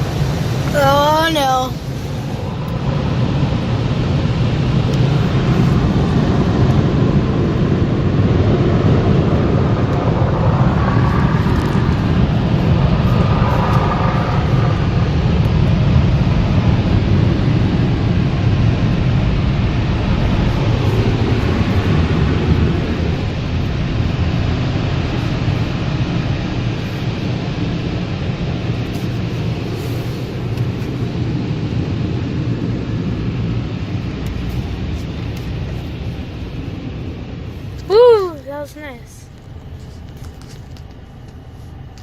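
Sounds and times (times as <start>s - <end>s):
car wash rushing noise: 0.0s - 42.0s.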